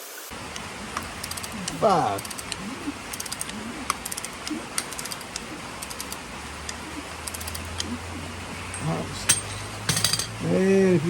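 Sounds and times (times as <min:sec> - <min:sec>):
ratchet wrench clicking: 0:01.0 - 0:07.9.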